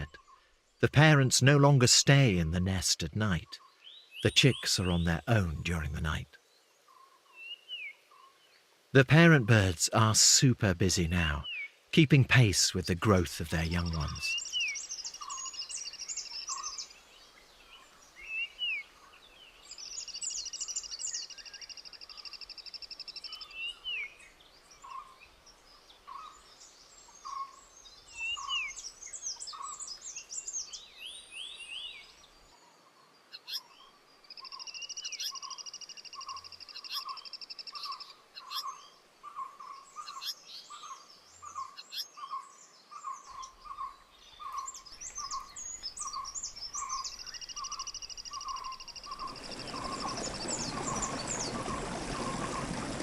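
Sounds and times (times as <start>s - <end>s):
bird buzzy trills: 44.4s - 53.0s.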